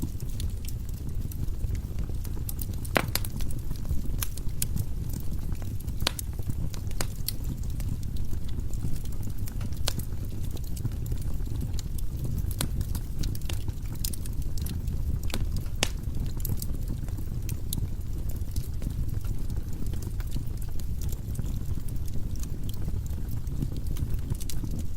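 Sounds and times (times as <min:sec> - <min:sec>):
burning wood crackling and popping: 0:00.0 - 0:24.9
fire rumbling: 0:00.0 - 0:24.9.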